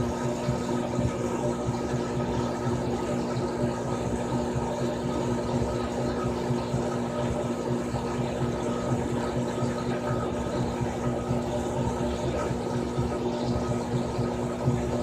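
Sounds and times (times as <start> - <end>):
washing machine churning: 0.0 - 15.0
washing machine motor hum: 0.0 - 15.0.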